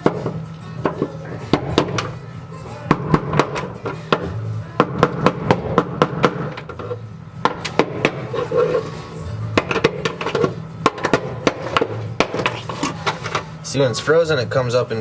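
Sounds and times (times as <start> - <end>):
background music with bass: 0.0 - 15.0
chisel striking steel: 9.6 - 13.4.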